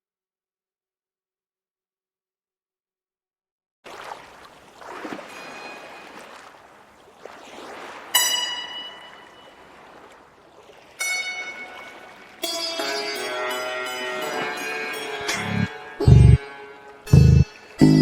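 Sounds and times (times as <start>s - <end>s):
struck or plucked notes ringing: 8.2s - 9.6s, 11.0s - 18.0s.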